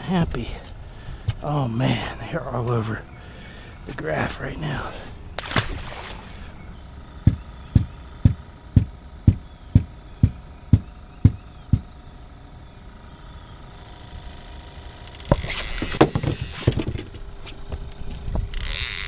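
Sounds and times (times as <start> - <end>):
fish splashing into water: 5.4 - 6.6
dull knocks: 7.3 - 11.9, 15.3 - 17.0.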